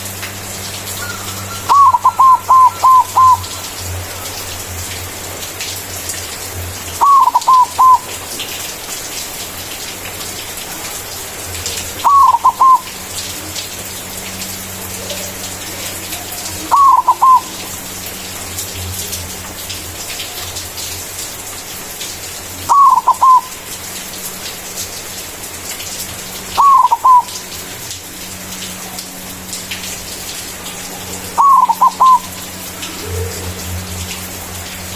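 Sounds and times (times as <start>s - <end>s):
dove cooing: 1.0s - 4.4s, 7.0s - 8.2s, 11.8s - 13.0s, 15.0s - 17.8s, 22.7s - 23.6s, 26.6s - 27.4s, 30.9s - 33.8s.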